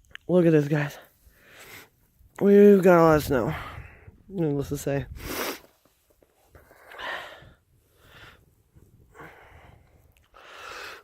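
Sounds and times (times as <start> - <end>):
person breathing heavily: 1.2 - 2.0, 3.4 - 4.3, 6.6 - 11.0.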